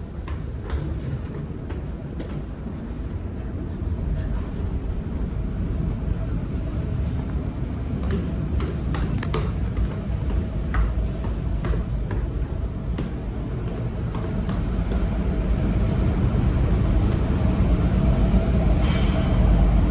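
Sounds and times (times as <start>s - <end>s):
low engine rumble: 0.0s - 19.9s.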